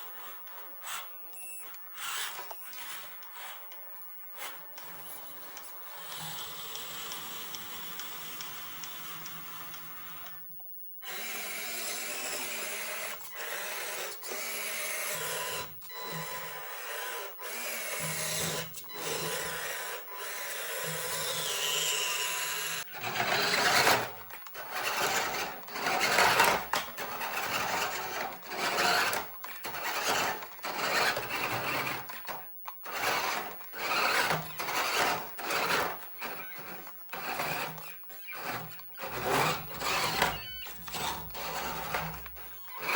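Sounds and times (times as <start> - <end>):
toy car motors whirring: 0.0 - 42.9.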